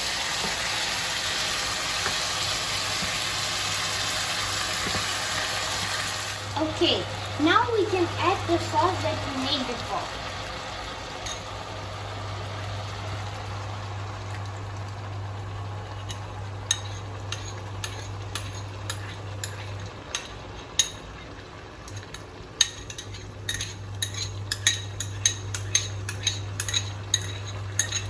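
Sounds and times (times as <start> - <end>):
chicken sizzling in pan: 0.0 - 28.0
steady low hum: 5.5 - 28.0
utensil scraping pan: 22.7 - 28.0.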